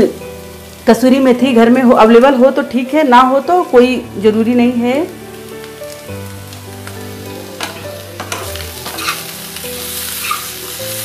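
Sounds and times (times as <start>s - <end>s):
potatoes sizzling in a pan: 0.0s - 11.0s
spatula scraping a pan: 8.3s - 9.3s.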